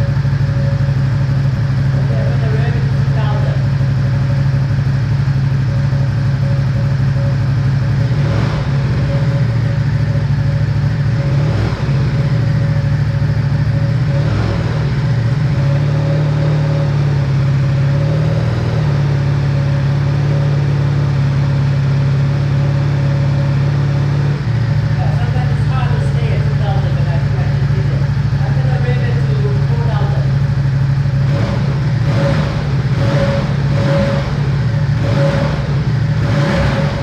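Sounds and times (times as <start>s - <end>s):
motorcycle engine idling: 0.0s - 37.0s.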